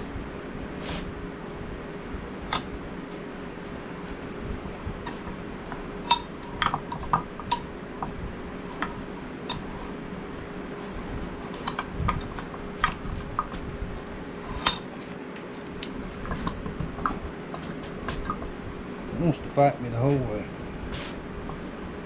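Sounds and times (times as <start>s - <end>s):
metal vise parts clinking: 5.0s - 7.7s, 14.4s - 15.0s.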